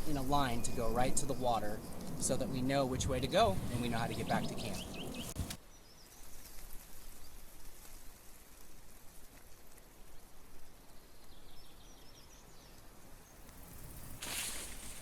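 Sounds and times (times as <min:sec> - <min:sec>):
light crackling: 0:00.0 - 0:05.6, 0:12.7 - 0:15.0
bird chirping: 0:00.0 - 0:06.1.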